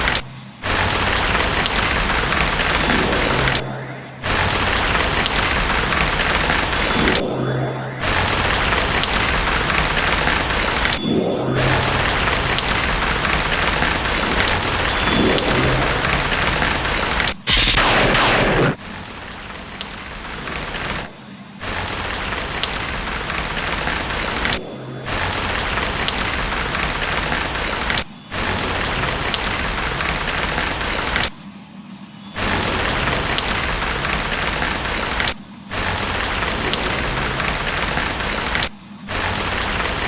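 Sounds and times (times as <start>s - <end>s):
heavy rain: 0.0s - 31.3s, 32.4s - 40.0s
loud thunderclap: 0.1s - 27.6s.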